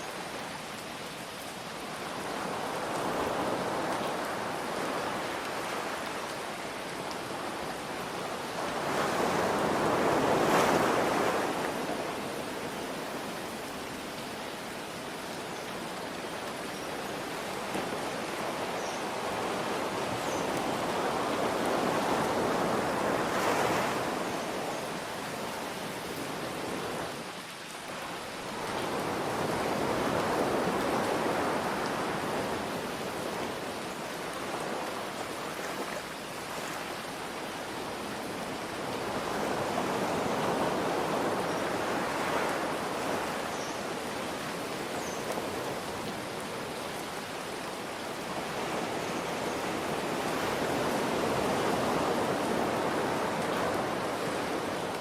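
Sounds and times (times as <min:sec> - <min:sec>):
rain hiss: 0:00.0 - 0:55.0
ocean waves breaking: 0:07.1 - 0:14.0, 0:17.1 - 0:27.1, 0:37.8 - 0:55.0.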